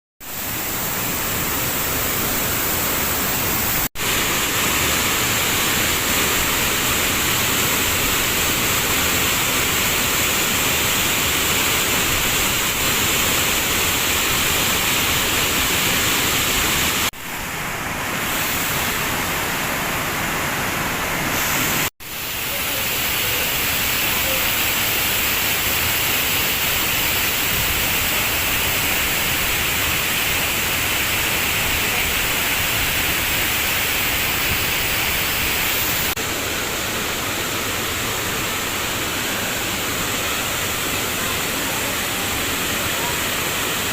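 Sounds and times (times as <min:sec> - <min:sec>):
waterfall rushing: 0:00.3 - 0:43.9.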